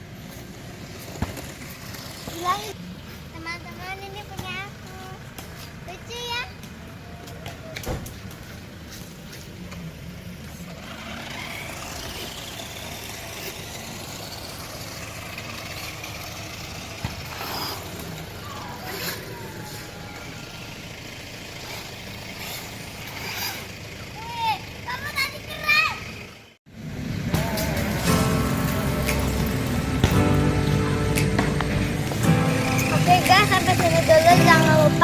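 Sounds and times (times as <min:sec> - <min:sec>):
electric motor whining: 0:10.8 - 0:20.3.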